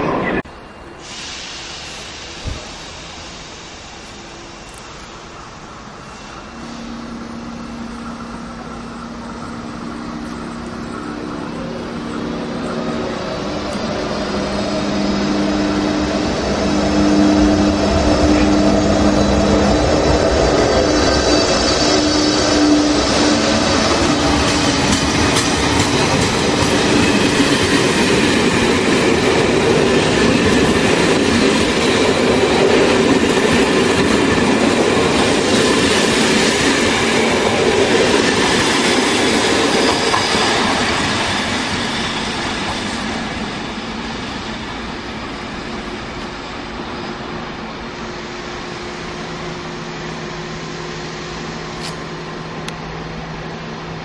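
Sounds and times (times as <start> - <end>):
locomotive hum: 0.0 - 54.0
train wheels on rails: 0.0 - 54.0.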